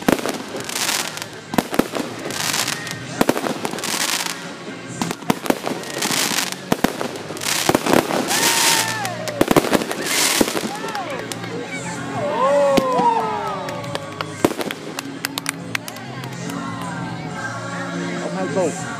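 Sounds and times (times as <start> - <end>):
firework bangs: 0.0 - 11.4, 14.4 - 15.5
firework crackling hiss: 0.0 - 11.5.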